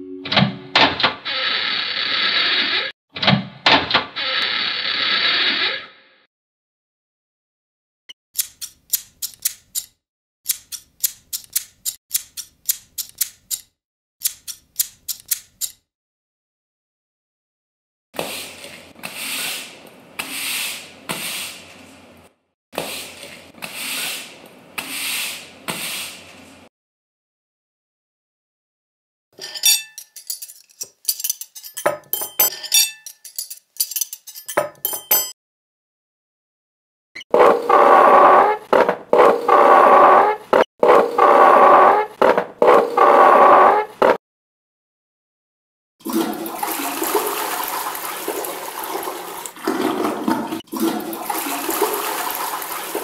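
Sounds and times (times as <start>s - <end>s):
sharp clicks: 8.4s - 15.8s
dishes and cutlery clinking: 29.4s - 35.4s.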